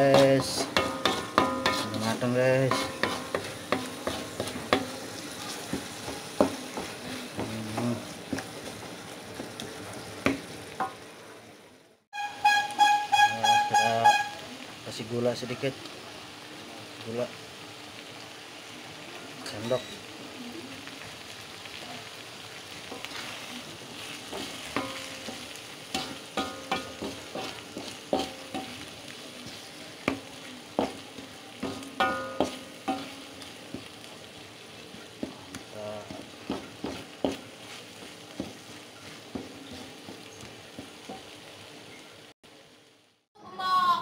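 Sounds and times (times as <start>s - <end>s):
spatula knocking against wok: 0.0s - 2.0s, 2.7s - 5.0s, 24.3s - 28.8s, 30.0s - 34.0s, 36.1s - 38.6s
wooden spatula scraping: 0.0s - 9.6s, 22.9s - 34.0s, 36.0s - 41.2s
sauce sizzling in a wok: 0.0s - 44.0s.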